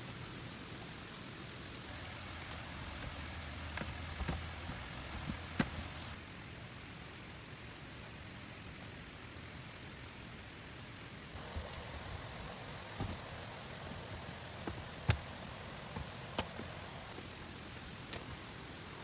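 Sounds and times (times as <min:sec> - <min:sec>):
heavy rain hissing: 0:00.6 - 0:07.9, 0:09.8 - 0:19.0.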